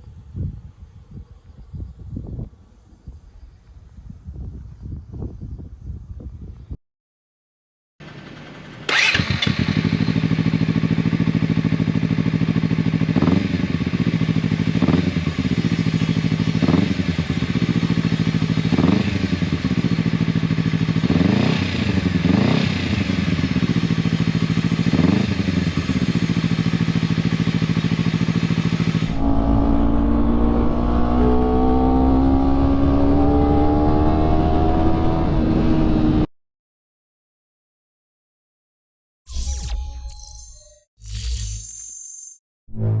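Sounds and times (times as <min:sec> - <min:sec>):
motorcycle engine revving: 0:08.0 - 0:36.3.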